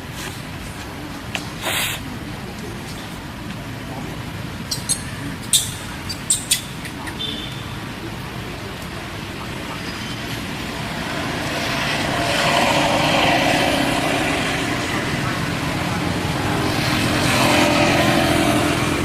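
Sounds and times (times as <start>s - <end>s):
vehicle passing: 5.2s - 19.0s.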